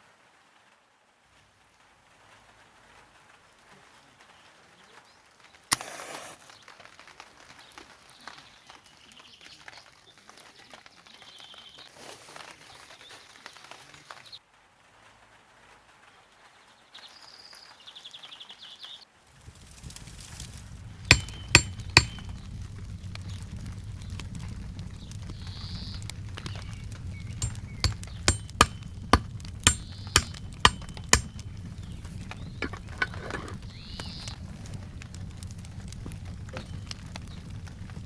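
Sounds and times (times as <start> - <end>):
low rumble: 20.0 - 30.6
sharp knocks: 21.1 - 23.4, 26.4 - 34.1.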